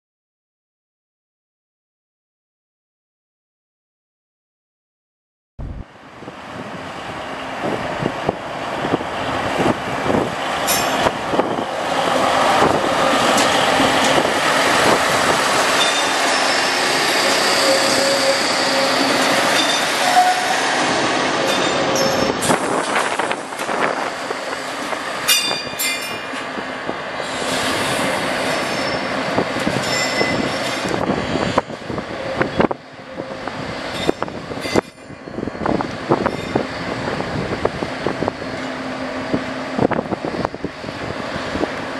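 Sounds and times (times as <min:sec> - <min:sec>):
clattering rail noise: 0:06.0 - 0:41.9
railcar wheels squealing: 0:10.6 - 0:26.5, 0:27.2 - 0:37.2.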